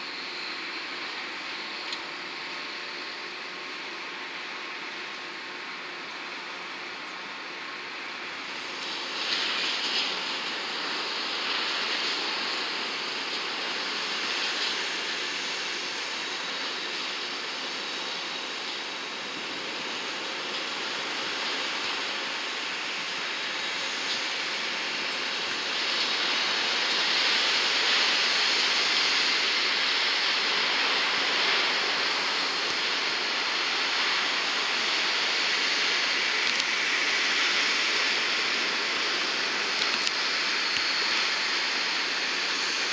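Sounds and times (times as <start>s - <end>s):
jet engines rushing: 19.7s - 42.9s.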